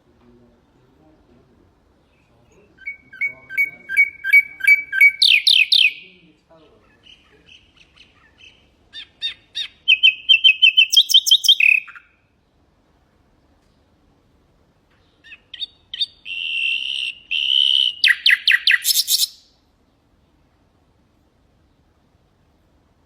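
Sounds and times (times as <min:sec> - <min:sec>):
nightingale singing: 0:02.0 - 0:12.4, 0:14.9 - 0:20.4.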